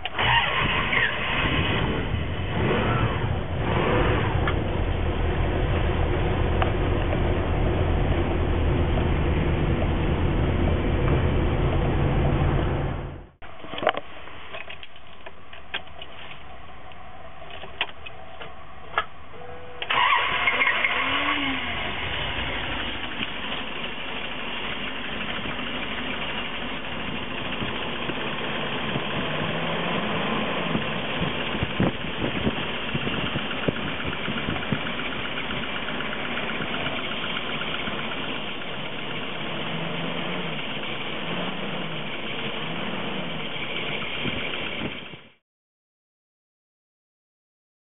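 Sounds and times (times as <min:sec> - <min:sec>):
engine starting and idling: 0:00.0 - 0:12.7, 0:19.8 - 0:45.4.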